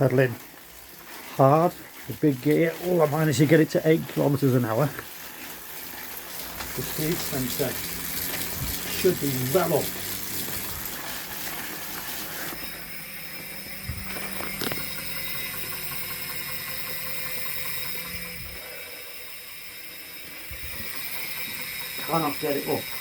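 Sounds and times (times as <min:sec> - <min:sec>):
bike trainer flywheel whirring: 0:00.0 - 0:23.0
low hum: 0:09.9 - 0:21.0.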